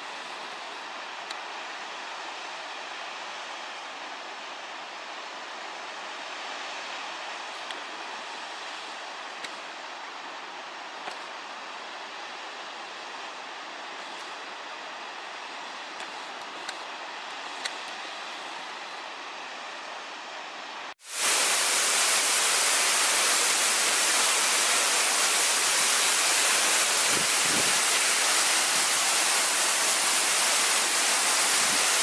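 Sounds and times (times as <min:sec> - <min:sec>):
waterfall rushing: 0:21.1 - 0:32.0.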